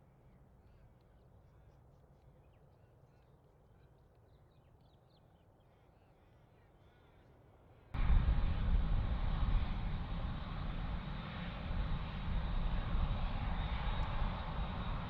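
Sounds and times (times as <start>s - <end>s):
loud aircraft noise: 8.0s - 15.0s
low steady rumble: 8.0s - 15.0s.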